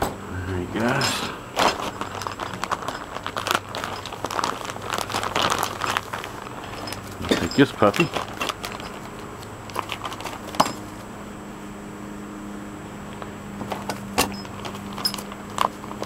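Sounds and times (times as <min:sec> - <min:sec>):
low hum: 0:00.0 - 0:15.6
metal hardware clicking and clinking: 0:06.6 - 0:10.9, 0:13.2 - 0:16.0.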